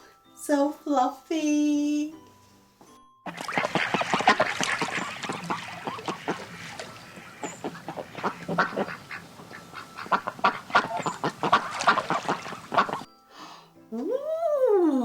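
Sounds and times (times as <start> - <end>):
ducks quacking: 3.3 - 13.1.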